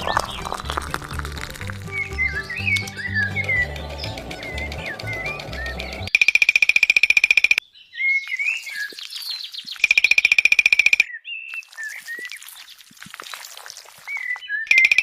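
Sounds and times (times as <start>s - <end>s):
birds chirping: 0.0s - 12.8s
buzzy bird trills: 1.8s - 11.1s.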